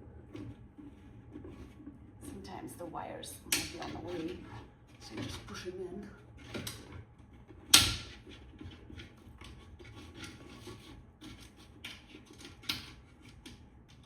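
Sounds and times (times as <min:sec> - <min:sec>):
light scraping and clicking: 0:00.2 - 0:14.0.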